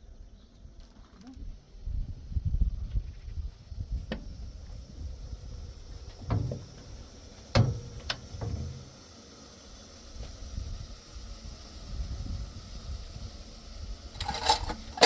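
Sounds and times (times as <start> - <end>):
low steady rumble: 1.8 - 9.0.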